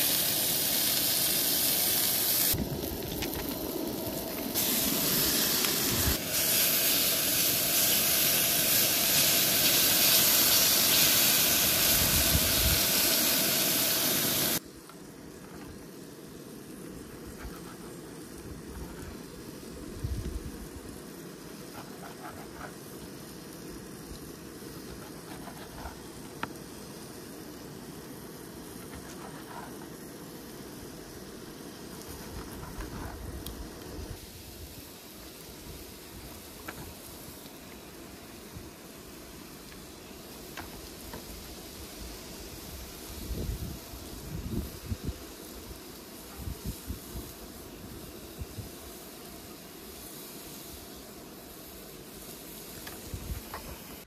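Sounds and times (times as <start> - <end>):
meat sizzling in a hot pan: 0.0 - 14.6.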